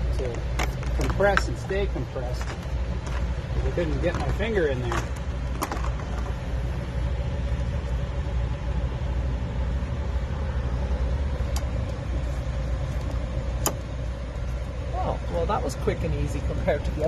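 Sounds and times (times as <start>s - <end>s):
truck engine idling: 0.0s - 17.0s
wiper blade snapping on: 13.6s - 13.9s.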